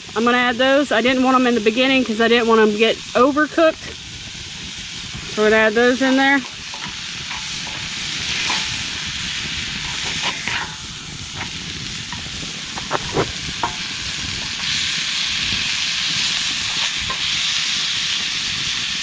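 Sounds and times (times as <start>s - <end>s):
vegetables sizzling in a skillet: 0.0s - 19.0s
utensil tapping and scraping: 6.4s - 9.1s, 9.8s - 14.8s, 16.5s - 17.4s.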